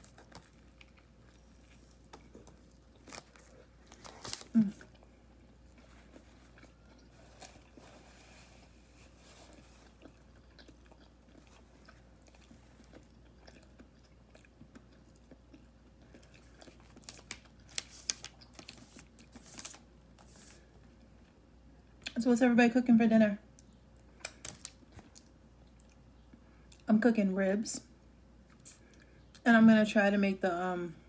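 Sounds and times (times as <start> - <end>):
chewing sandwich: 0.0 - 20.0, 23.6 - 26.8.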